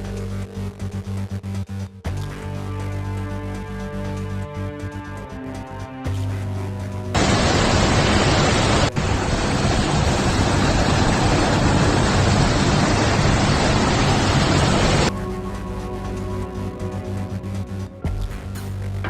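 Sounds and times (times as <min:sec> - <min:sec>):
rushing storm noise: 0:07.2 - 0:15.1
faint background music: 0:15.1 - 0:19.0.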